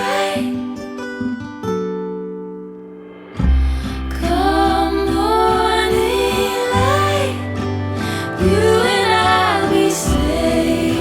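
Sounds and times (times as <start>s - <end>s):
instrumental pop-folk music: 0.0s - 11.0s
deep bass note: 3.3s - 11.0s.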